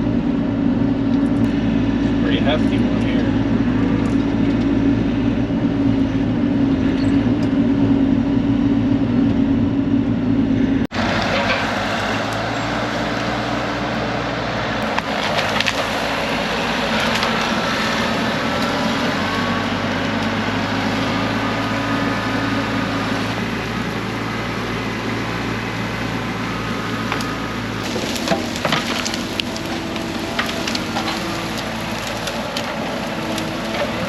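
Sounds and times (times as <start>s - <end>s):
diesel engine running under load: 0.0s - 34.0s
wood cracking and splintering: 14.8s - 26.1s, 26.8s - 34.0s.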